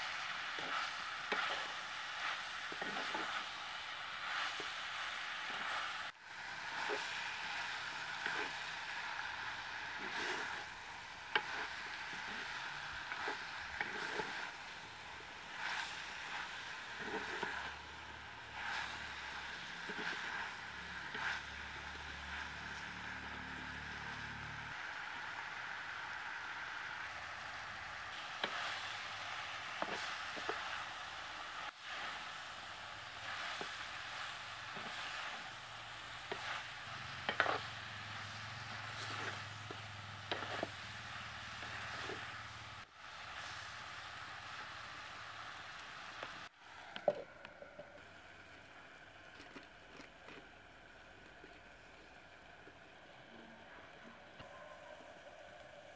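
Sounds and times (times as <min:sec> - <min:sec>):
food sizzling in oil: 0:00.0 - 0:48.2
spatula scraping and tapping pot: 0:00.1 - 0:03.4, 0:08.2 - 0:08.6, 0:11.3 - 0:14.6, 0:15.5 - 0:17.8, 0:18.5 - 0:21.5, 0:28.4 - 0:28.8, 0:29.8 - 0:30.8, 0:36.2 - 0:40.8.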